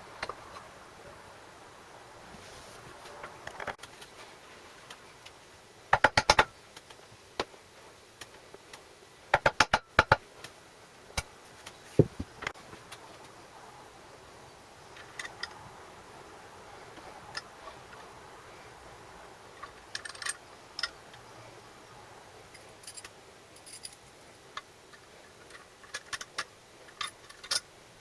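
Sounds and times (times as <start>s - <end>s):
sharp taps and clicks of hand tools: 5.9s - 7.5s, 8.2s - 10.2s
dull knock: 12.0s - 12.3s.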